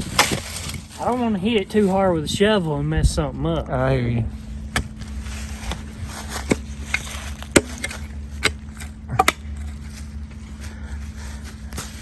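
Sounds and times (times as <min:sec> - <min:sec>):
shovel scraping dirt: 0:00.0 - 0:01.9, 0:04.6 - 0:10.4
steady low hum: 0:00.0 - 0:12.0
shovel striking metal: 0:06.4 - 0:09.6.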